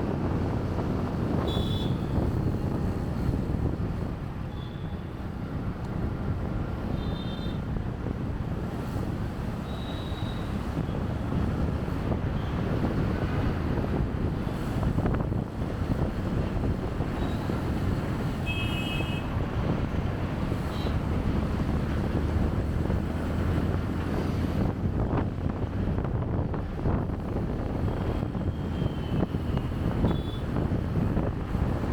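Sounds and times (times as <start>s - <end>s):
wind buffeting microphone: 0.0s - 4.5s, 10.5s - 18.4s, 19.2s - 31.9s.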